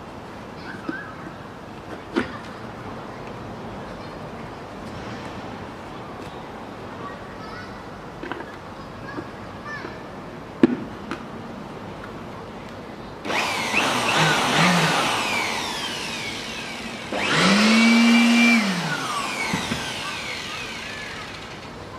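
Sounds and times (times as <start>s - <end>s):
electric blower-vacuum whining: 13.3s - 21.9s.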